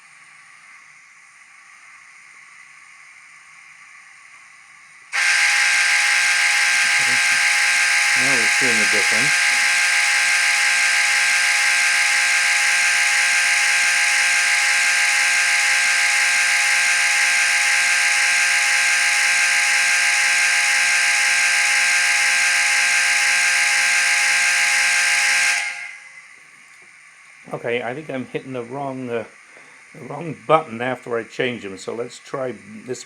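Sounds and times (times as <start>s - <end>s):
steam whistle through small speaker: 5.2s - 26.2s.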